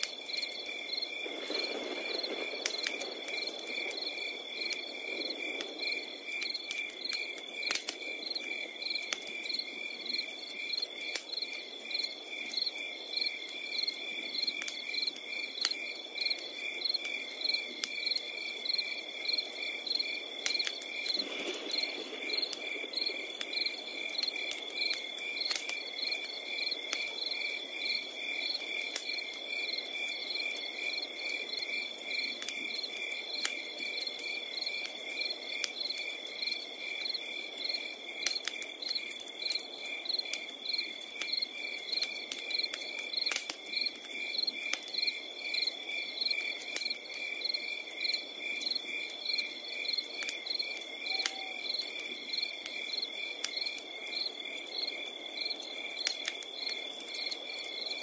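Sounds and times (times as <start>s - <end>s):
campfire crackling: 0.0s - 58.0s
cricket chirps: 0.0s - 58.0s
crickets trilling: 0.0s - 58.0s.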